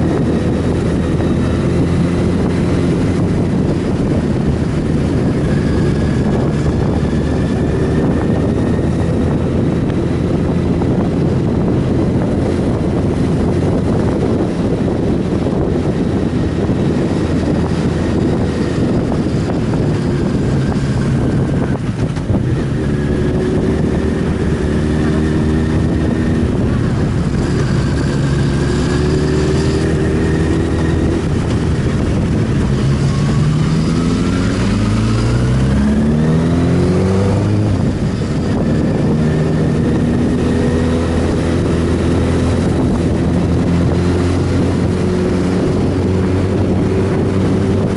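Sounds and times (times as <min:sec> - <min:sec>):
motorcycle engine revving: 0:00.0 - 0:47.9
wind noise: 0:00.0 - 0:47.9.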